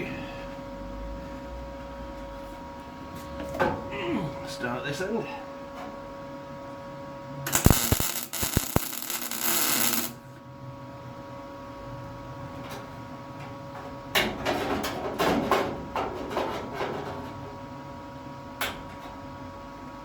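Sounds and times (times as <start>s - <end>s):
welder hum: 7.5s - 10.2s
welding arc crackling: 7.5s - 10.2s.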